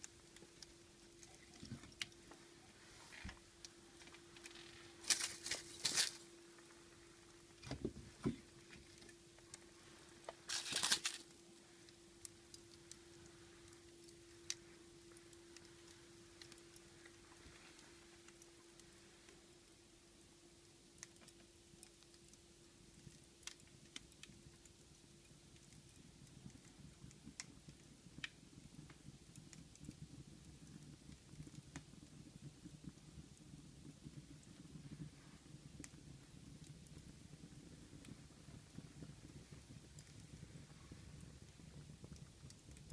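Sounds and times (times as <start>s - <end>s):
faint steady hum: 0.0s - 42.9s
wood fire crackling: 0.0s - 42.9s
fire pops: 3.1s - 6.7s, 10.2s - 15.7s, 21.0s - 42.9s.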